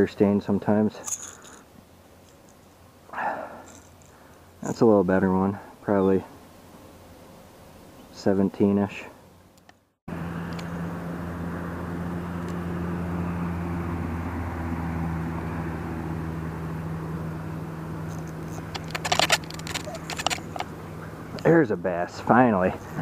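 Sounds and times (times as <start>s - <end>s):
low engine drone: 0.0s - 6.1s, 10.1s - 23.0s
sharp clicks and rattles: 1.0s - 2.7s, 3.6s - 4.8s, 18.1s - 20.7s.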